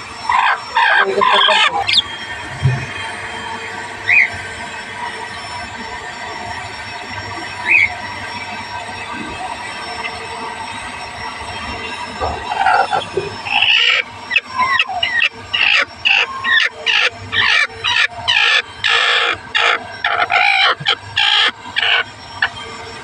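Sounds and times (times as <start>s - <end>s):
hen calling: 0.3s - 2.0s, 12.4s - 22.0s.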